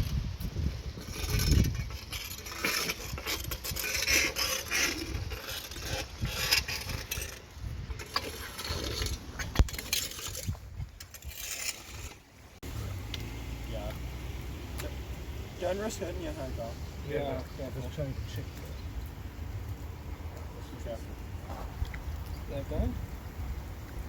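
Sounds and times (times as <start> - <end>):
tool scraping and clanking: 0.9 - 12.6.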